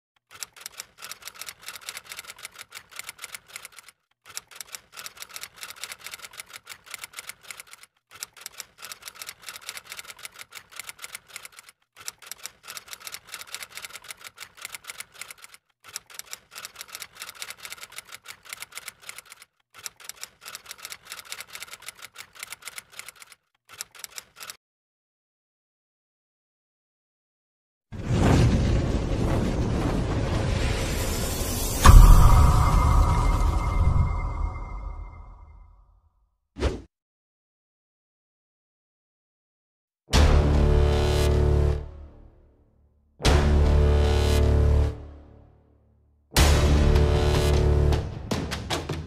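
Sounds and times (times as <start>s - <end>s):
rapid dense clicking: 0.2s - 24.6s.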